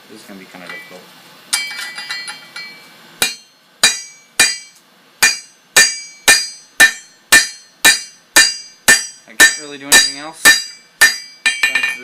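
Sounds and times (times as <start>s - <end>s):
hammer striking steel on anvil: 1.5s - 12.0s.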